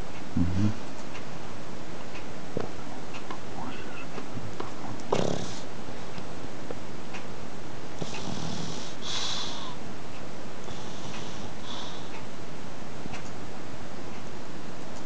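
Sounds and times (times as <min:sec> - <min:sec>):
steady background hiss: 0:00.0 - 0:15.0
dog snoring: 0:04.8 - 0:05.7, 0:08.0 - 0:09.8, 0:10.7 - 0:12.1.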